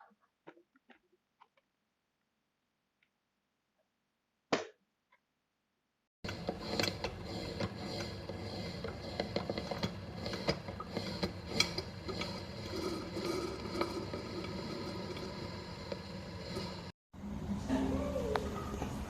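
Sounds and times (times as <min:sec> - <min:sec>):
coffee maker hissing: 0:06.2 - 0:19.0.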